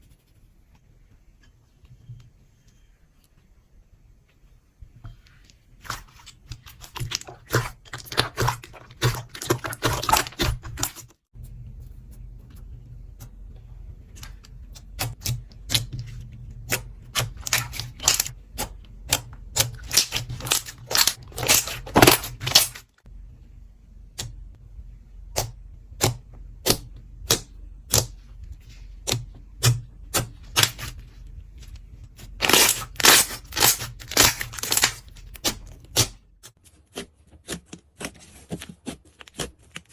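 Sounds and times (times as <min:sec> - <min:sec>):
low hum: 0:11.4 - 0:20.5, 0:23.1 - 0:32.3
slime clicking and crackling: 0:16.6 - 0:22.9, 0:32.2 - 0:36.2.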